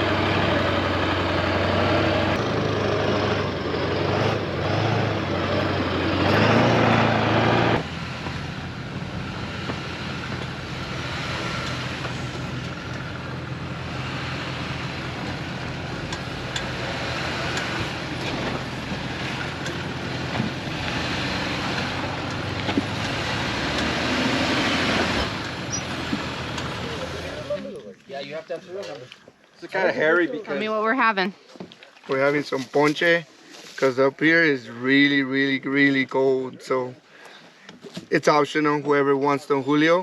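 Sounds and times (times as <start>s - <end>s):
pickup truck engine running: 0.0s - 27.6s.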